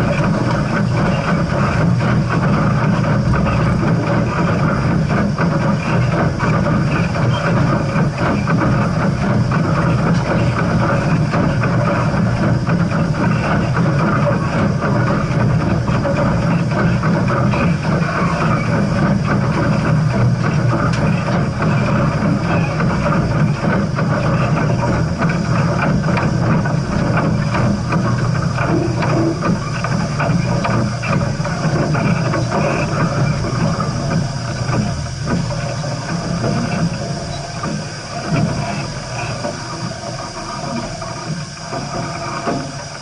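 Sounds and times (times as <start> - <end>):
steam train rumbling on rails: 0.0 - 43.0
train wheels clanking: 11.2 - 43.0.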